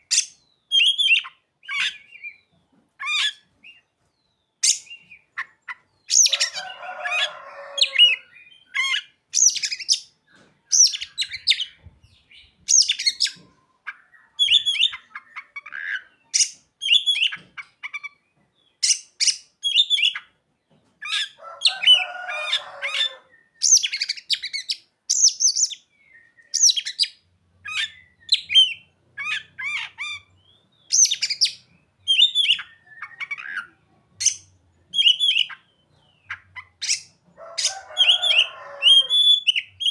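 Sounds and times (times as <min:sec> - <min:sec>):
bird song whistles and chirps: 0:00.0 - 0:03.8, 0:07.8 - 0:10.1, 0:10.7 - 0:18.2, 0:18.8 - 0:20.3, 0:23.3 - 0:39.9.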